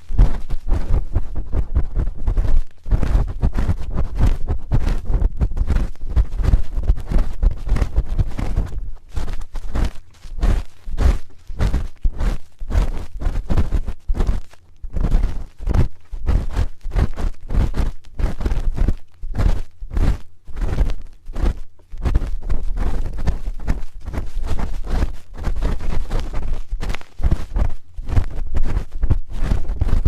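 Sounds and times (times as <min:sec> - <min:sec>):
spoon scraping and tapping microphone: 0:00.0 - 0:18.5.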